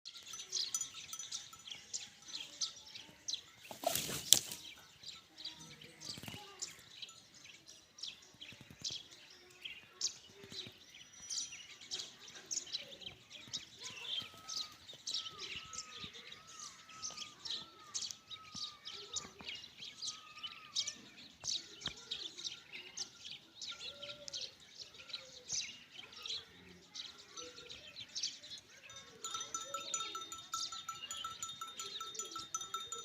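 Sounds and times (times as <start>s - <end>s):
small birds chirping: 0.0s - 33.0s
loud rustle: 3.7s - 4.7s.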